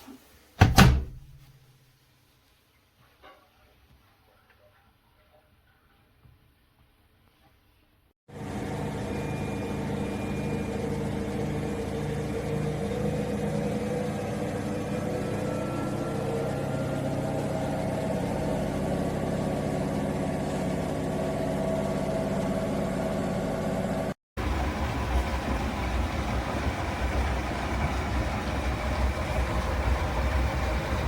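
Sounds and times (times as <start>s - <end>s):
washing machine running: 0.6s - 1.5s, 8.3s - 31.0s.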